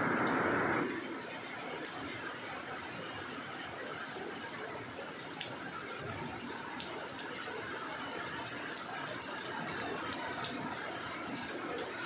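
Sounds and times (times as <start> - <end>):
rain on a wet road: 0.0 - 12.0.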